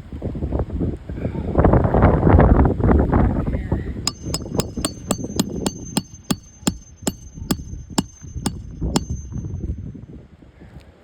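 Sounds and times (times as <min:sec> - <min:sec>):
hammer striking nails: 0:04.1 - 0:09.8.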